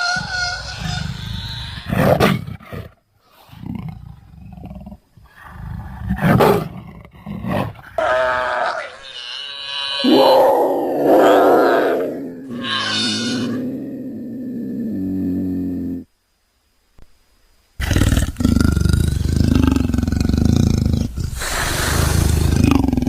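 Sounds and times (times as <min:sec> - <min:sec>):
creature calls: 0:00.0 - 0:02.2, 0:08.0 - 0:16.0
long rough creature call: 0:08.0 - 0:16.1.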